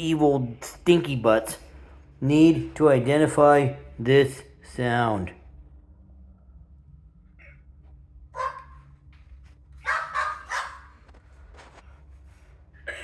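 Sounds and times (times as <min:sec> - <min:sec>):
dog barking: 0:08.3 - 0:08.9, 0:09.8 - 0:11.0.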